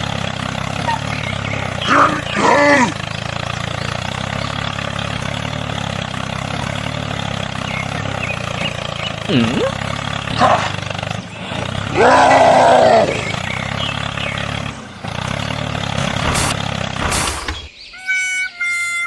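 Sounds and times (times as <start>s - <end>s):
small engine running: 0.0s - 19.0s
tune playing: 18.0s - 19.0s.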